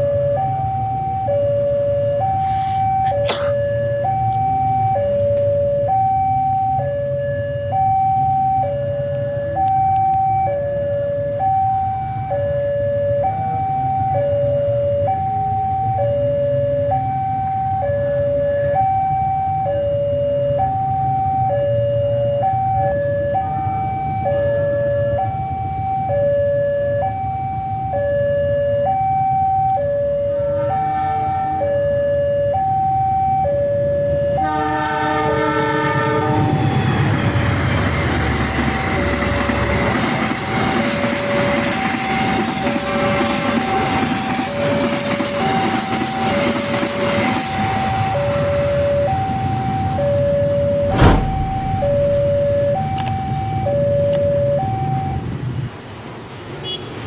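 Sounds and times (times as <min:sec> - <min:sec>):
level crossing two-tone alarm: 0:00.0 - 0:30.9, 0:31.6 - 0:34.9, 0:41.4 - 0:55.2
low rumble: 0:50.7 - 0:52.8.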